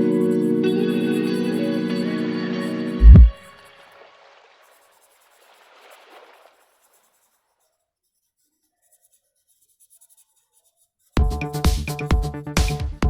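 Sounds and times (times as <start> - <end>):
marker scratching on paper: 4.6 - 11.3.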